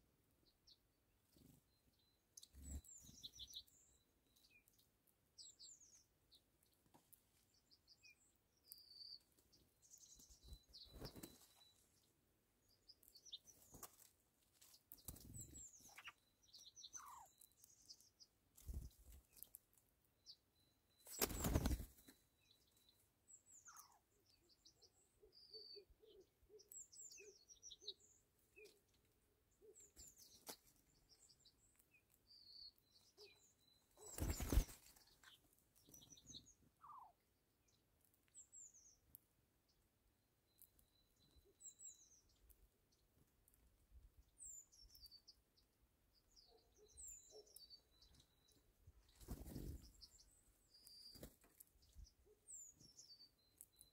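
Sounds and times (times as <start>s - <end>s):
small birds chirping: 0.0s - 53.9s
wings fluttering: 10.2s - 11.6s, 13.4s - 16.1s, 18.5s - 19.4s, 21.0s - 22.1s, 33.9s - 35.4s, 49.0s - 50.1s, 51.0s - 51.6s.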